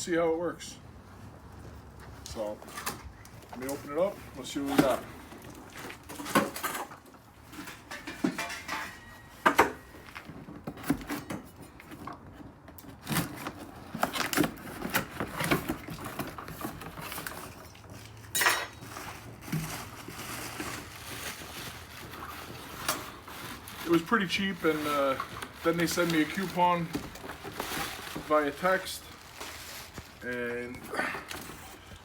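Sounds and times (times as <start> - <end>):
cardboard and packing rustling: 1.0 - 32.0
knocks and metallic clinks: 7.6 - 9.8.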